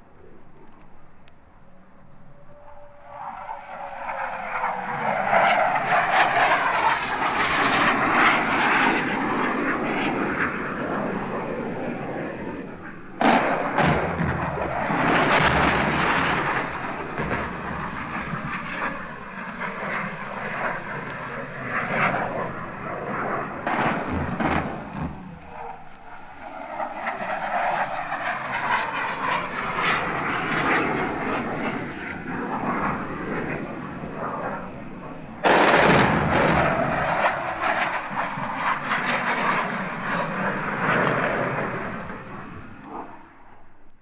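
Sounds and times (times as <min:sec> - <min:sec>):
aircraft engine passing: 0:00.0 - 0:43.9
sharp cracks: 0:03.5 - 0:44.0
loud bang: 0:13.2 - 0:18.6, 0:23.6 - 0:25.8, 0:35.4 - 0:37.9.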